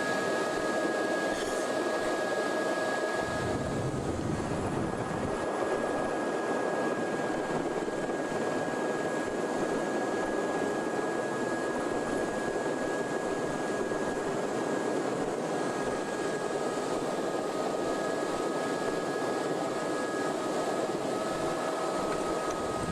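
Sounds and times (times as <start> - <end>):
low whine: 0.0 - 8.2, 16.1 - 22.9
helicopter engine and rotors: 0.0 - 22.9.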